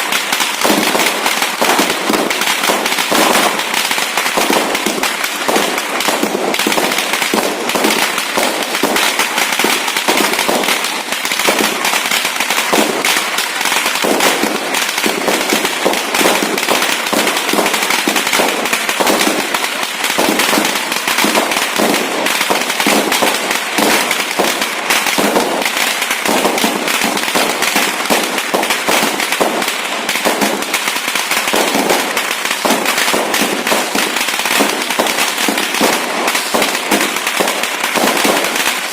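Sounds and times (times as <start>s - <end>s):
fireworks crackling: 0.0s - 38.9s.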